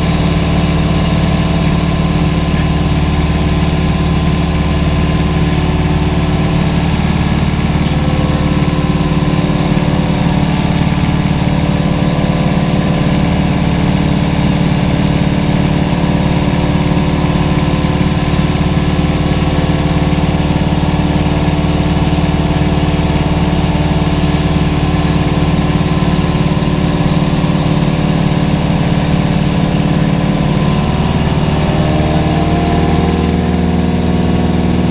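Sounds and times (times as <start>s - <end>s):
aircraft engine running: 0.0s - 34.9s.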